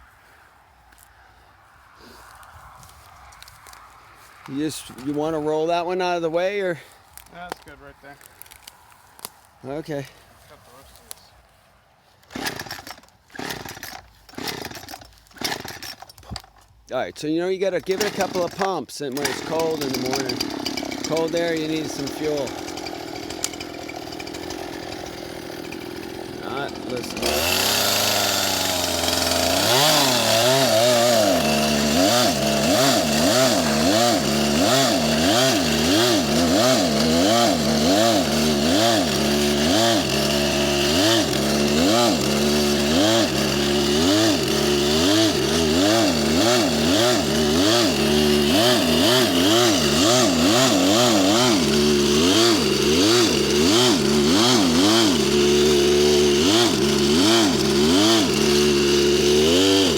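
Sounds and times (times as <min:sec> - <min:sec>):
chainsaw engine surging: 0:12.2 - 0:16.5, 0:17.8 - 0:59.9.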